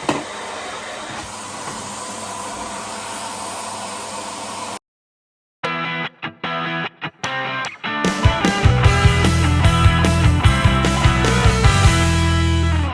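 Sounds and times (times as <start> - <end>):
vacuum cleaner running: 0.0 - 4.8
music: 5.6 - 12.9.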